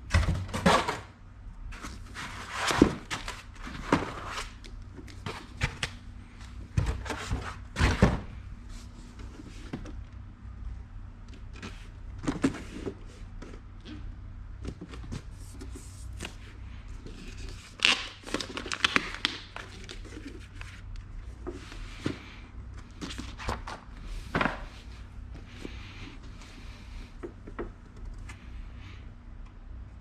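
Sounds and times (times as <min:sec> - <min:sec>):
low steady hum: 0:00.0 - 0:30.0
packaging rustling and clicking: 0:17.7 - 0:20.7.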